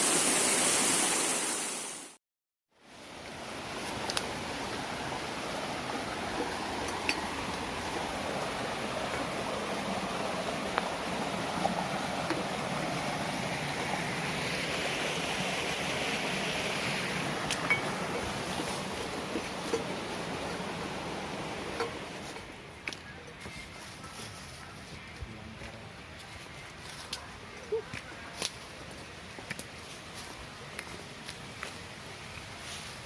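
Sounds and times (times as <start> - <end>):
waterfall rushing: 0.0 - 2.2, 3.0 - 22.3.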